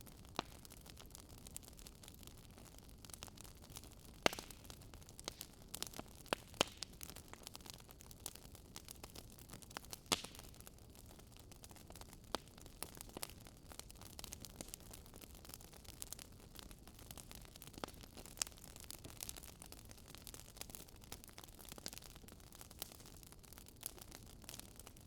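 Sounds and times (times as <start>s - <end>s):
wood fire crackling: 0.0s - 25.0s
sharp pops and snaps: 4.2s - 4.6s, 6.3s - 6.9s, 10.1s - 10.4s.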